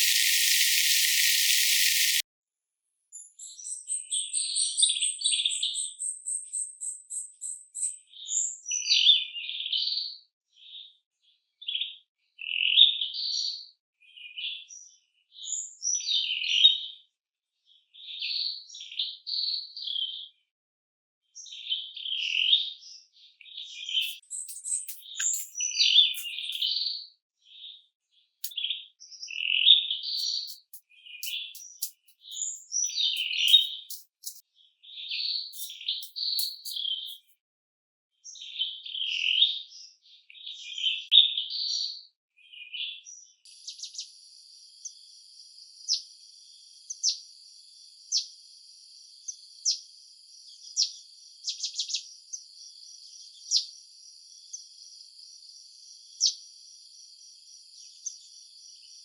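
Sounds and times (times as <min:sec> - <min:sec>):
high-pitched insect drone: 0:00.0 - 0:02.2, 0:24.0 - 0:25.6, 0:26.2 - 0:26.7, 0:30.2 - 0:34.4, 0:35.6 - 0:37.2
sharp insect chirp: 0:00.0 - 0:02.2, 0:24.0 - 0:26.7, 0:30.2 - 0:34.4, 0:35.6 - 0:37.3
songbirds chirping: 0:00.0 - 0:02.2, 0:23.9 - 0:26.7, 0:30.0 - 0:34.4, 0:35.0 - 0:37.3.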